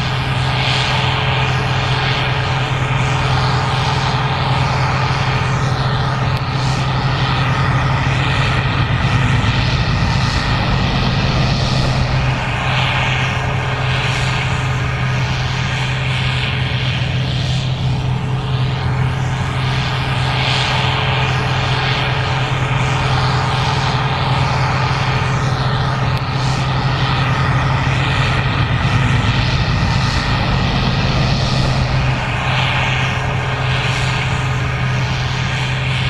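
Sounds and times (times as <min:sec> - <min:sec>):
combine harvester running: 0:15.5 - 0:36.0.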